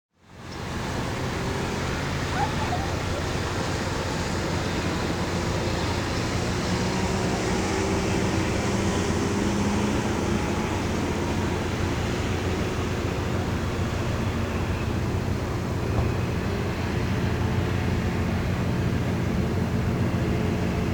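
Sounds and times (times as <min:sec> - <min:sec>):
tugboat engine drone: 0:00.2 - 0:20.9
background rush: 0:00.6 - 0:20.9.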